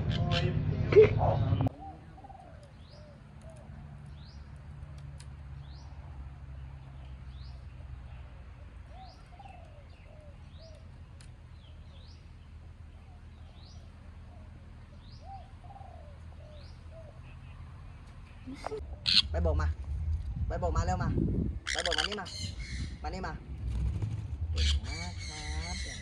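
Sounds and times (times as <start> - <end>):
bird chirping: 1.3 - 4.7, 5.5 - 19.6, 21.7 - 23.7, 24.6 - 26.0
dove cooing: 1.7 - 3.8, 8.6 - 10.9, 13.0 - 17.6.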